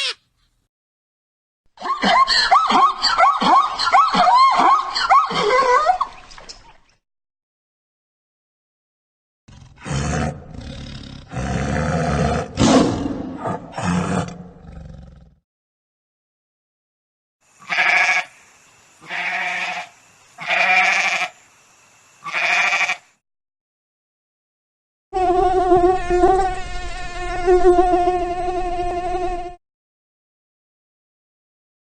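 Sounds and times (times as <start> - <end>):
animal bleats: 0.0 - 0.2, 17.6 - 18.3, 19.0 - 21.4, 22.2 - 23.1
harsh growling animal call: 9.5 - 15.4.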